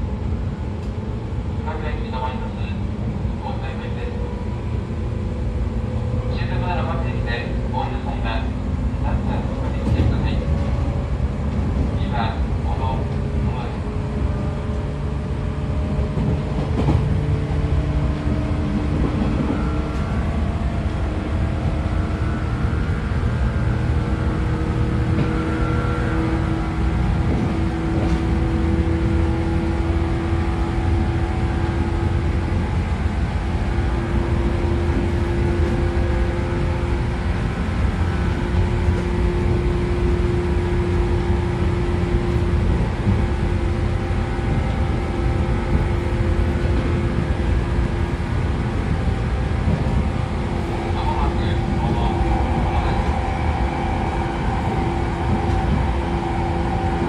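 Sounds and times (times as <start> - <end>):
wheels rumbling on rail: 0.0 - 57.0.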